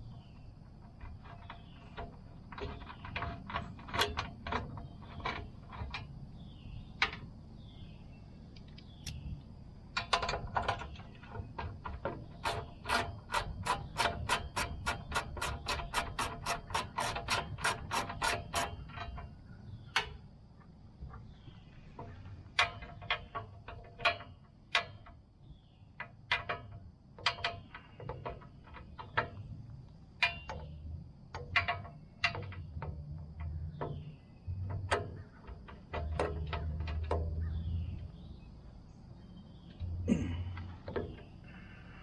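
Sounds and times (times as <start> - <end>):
ratchet clicking: 10.0 - 19.2.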